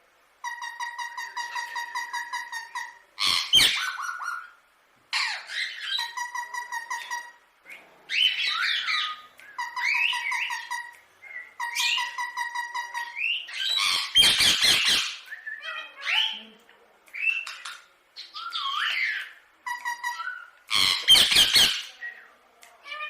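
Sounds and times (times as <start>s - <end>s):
parakeet chattering and squawking: 0.4s - 7.4s, 8.1s - 16.5s, 17.2s - 22.1s.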